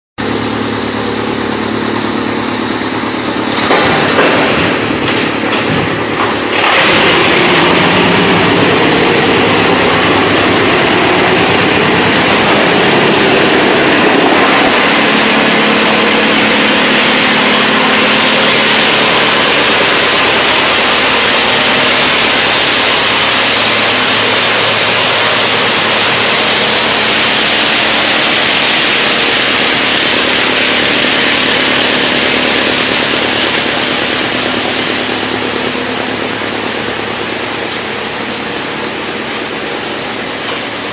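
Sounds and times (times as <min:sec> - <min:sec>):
wood chipper running: 0:00.2 - 0:40.9.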